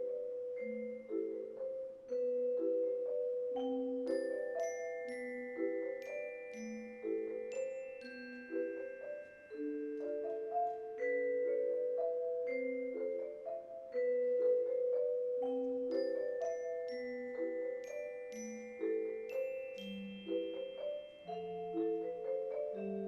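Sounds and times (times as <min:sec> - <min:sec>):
mallet percussion waltz: 0:00.0 - 0:23.0
high bell-like pings: 0:04.1 - 0:11.8, 0:15.9 - 0:23.0.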